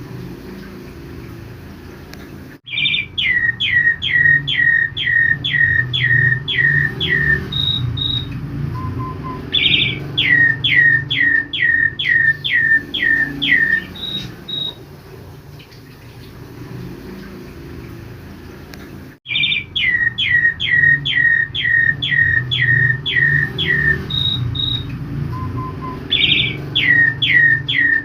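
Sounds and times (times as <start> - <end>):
bird whistling calls: 2.7 - 14.8, 19.3 - 28.0.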